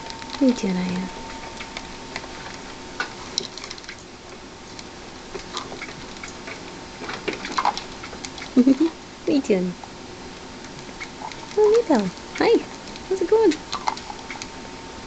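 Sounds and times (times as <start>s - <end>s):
rats clicking and scratching: 0.0s - 8.7s, 10.4s - 14.6s.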